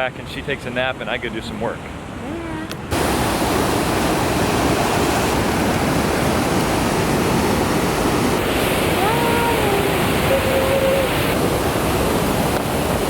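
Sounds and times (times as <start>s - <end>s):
waterfall roaring: 2.1s - 13.0s.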